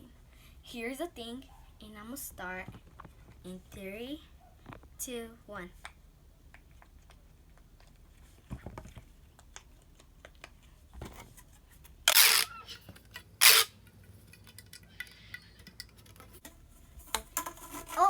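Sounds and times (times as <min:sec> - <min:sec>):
fidget toy popping and clicking: 0:12.1 - 0:12.6.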